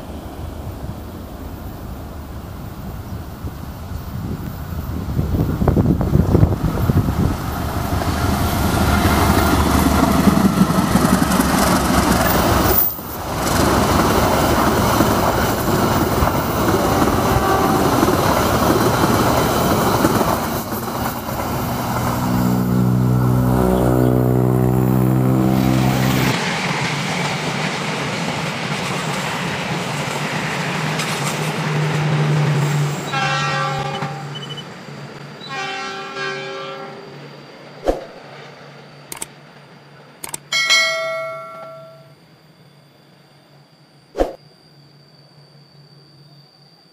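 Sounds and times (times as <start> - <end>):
train wheels rumbling on rails: 0.0 - 42.1
train horn: 16.7 - 18.2, 22.1 - 26.4, 33.1 - 34.6, 35.4 - 37.2
steady low tone: 40.5 - 42.2.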